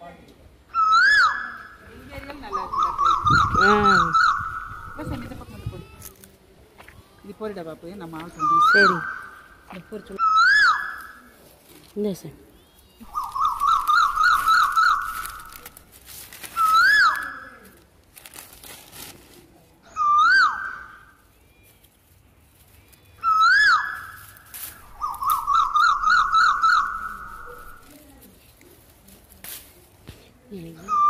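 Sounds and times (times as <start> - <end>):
bird warbling trill: 0.7 - 5.4, 12.8 - 15.7, 23.2 - 27.9
bird whistled notes: 2.6 - 5.2, 12.6 - 15.5, 16.6 - 17.4, 19.9 - 21.1, 23.2 - 24.2, 24.8 - 27.8.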